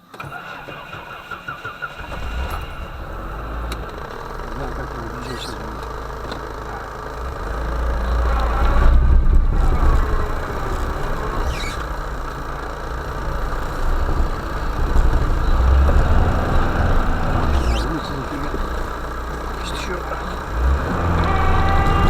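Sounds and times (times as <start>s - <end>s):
van engine under load: 0.0s - 22.0s
short high squeaks: 11.4s - 11.9s.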